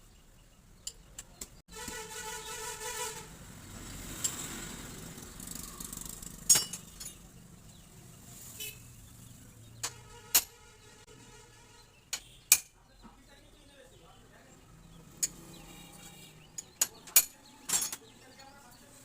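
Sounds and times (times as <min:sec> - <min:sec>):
metal parts clinking: 0:06.2 - 0:07.3, 0:16.6 - 0:18.6.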